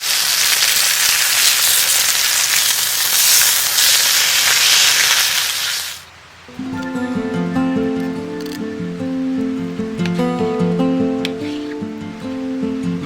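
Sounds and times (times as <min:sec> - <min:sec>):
food sizzling in a hot pan: 0:00.0 - 0:06.0
acoustic guitar music: 0:06.5 - 0:13.0.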